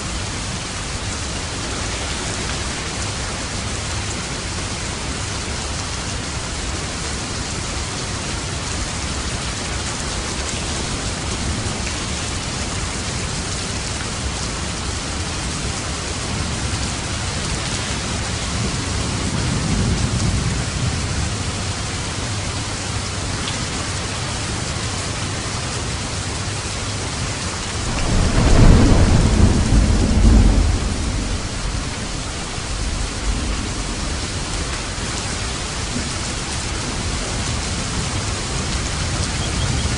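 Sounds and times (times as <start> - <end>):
heavy rain: 0.0 - 39.9
rolling thunder: 27.6 - 39.9.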